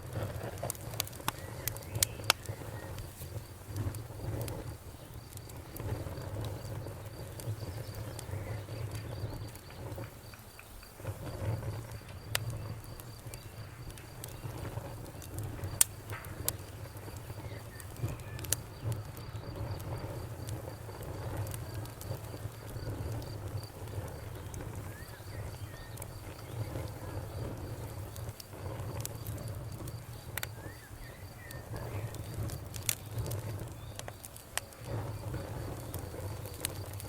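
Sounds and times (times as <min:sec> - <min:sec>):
campfire crackling and popping: 0:00.0 - 0:37.0
low rumble of flame: 0:00.0 - 0:37.0
cricket chirping: 0:01.3 - 0:37.0.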